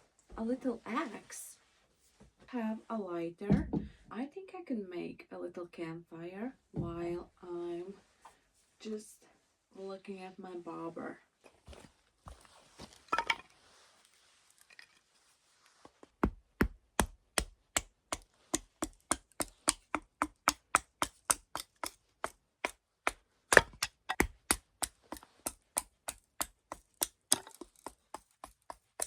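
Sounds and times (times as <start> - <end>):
axe chopping wood: 16.2 - 28.6.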